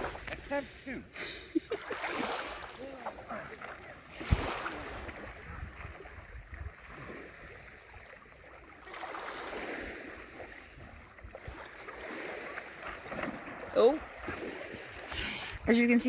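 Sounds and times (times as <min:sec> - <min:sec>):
water lapping around paddleboard: 0:00.0 - 0:16.0
wind rumble on microphone: 0:04.2 - 0:07.9.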